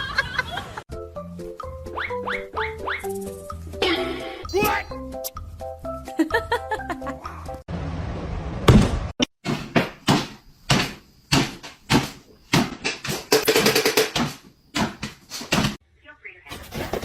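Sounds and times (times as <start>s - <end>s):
knocks and bangs: 8.6s - 15.8s.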